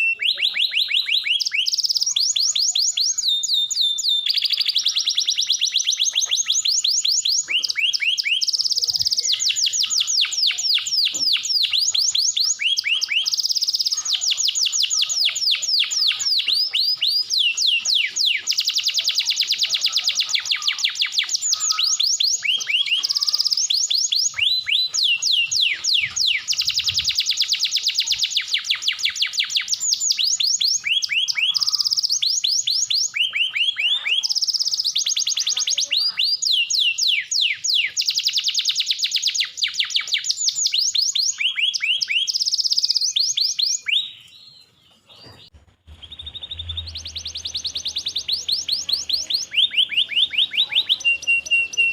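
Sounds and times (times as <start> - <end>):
canary singing trills: 0.0 - 51.9.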